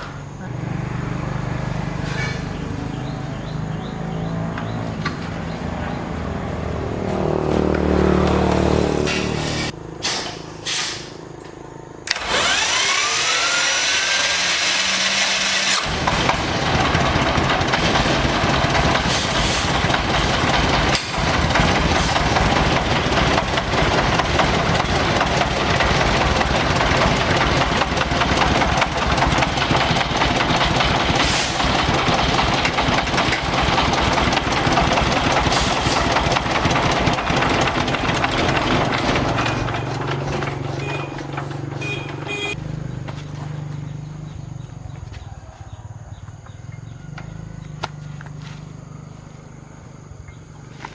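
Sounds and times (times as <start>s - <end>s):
tractor engine starting and running: 0.0s - 50.9s
machine winding down: 12.1s - 42.5s.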